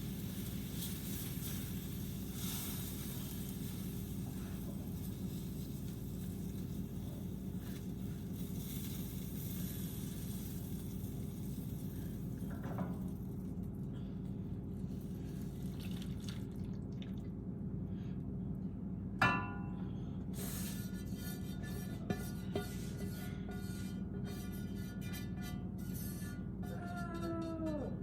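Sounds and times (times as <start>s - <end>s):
low kitchen hum: 0.0s - 28.0s
glass clinking: 19.2s - 19.8s.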